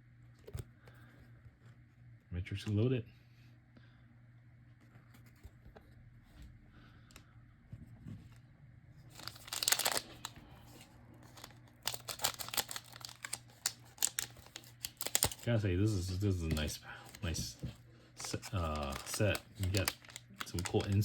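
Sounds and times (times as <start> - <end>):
wrapper crinkling: 9.1 - 17.6, 18.2 - 21.0
foil wrapper ripping: 9.2 - 10.3, 11.3 - 17.6, 18.2 - 21.0.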